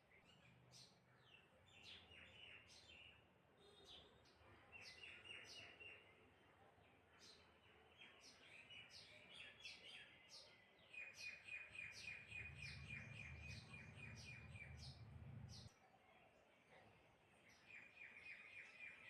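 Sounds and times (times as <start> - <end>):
birds chirping: 11.0 - 15.8
faint low rumble: 12.5 - 15.7.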